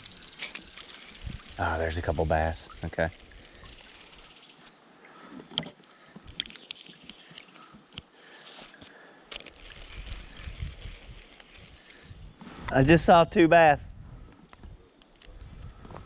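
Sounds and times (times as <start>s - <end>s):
clicks and knocks of fishing gear: 0.0s - 1.9s, 2.7s - 4.4s, 5.3s - 12.1s.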